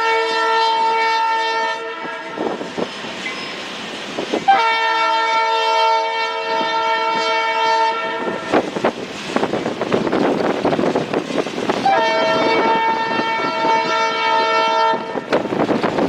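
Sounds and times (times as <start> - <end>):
locomotive air horn blast: 0.0 - 2.6, 4.5 - 8.7, 11.8 - 15.5
train wheels clattering on rails: 2.2 - 5.4, 8.2 - 16.0.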